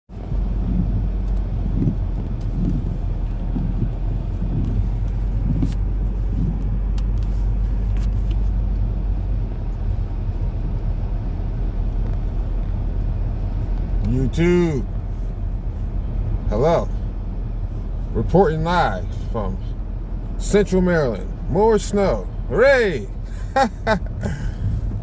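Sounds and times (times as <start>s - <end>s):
low engine hum: 0.1s - 25.0s.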